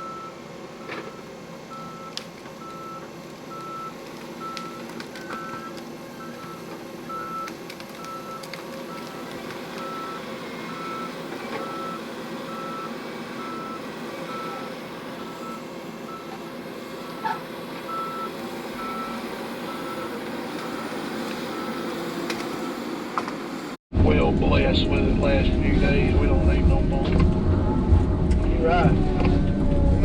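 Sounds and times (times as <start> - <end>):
backup alarm beeping: 0.0 - 16.4, 17.0 - 22.8
diesel engine running: 0.0 - 30.0.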